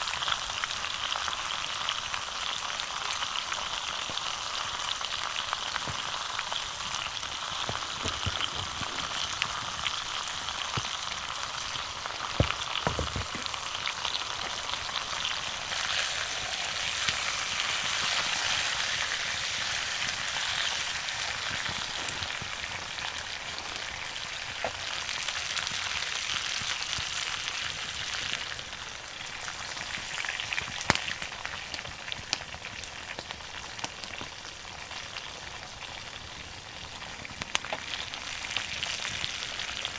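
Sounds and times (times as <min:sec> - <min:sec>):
steak sizzling: 0:00.0 - 0:39.9
fire pops: 0:04.0 - 0:27.4.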